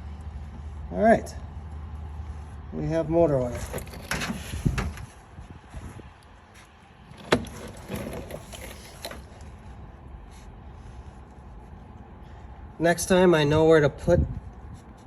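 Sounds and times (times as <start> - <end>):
tools clunking and clicking: 3.5 - 5.1, 7.1 - 9.6.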